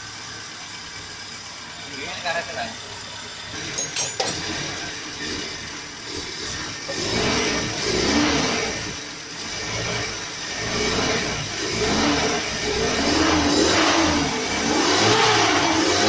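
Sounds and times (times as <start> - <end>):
car engine revving: 3.4 - 16.0.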